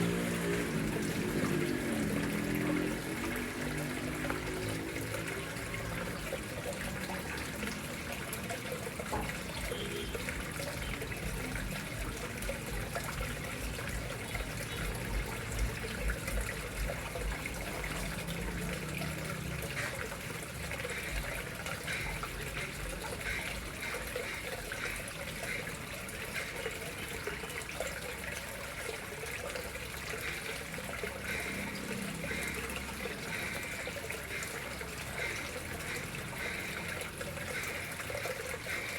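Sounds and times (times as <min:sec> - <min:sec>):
water trickling into a pond: 0:00.0 - 0:38.9.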